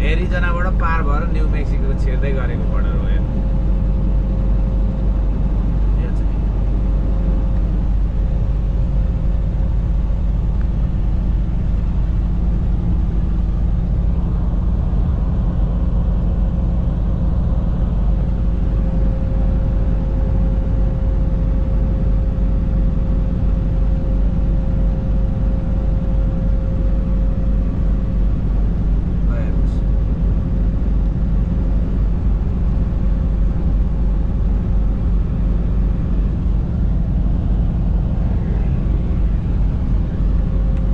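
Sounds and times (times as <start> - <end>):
road noise: 0.0 - 22.2, 23.7 - 40.9
faint steady whine: 0.0 - 40.9
truck engine drone: 0.0 - 40.9.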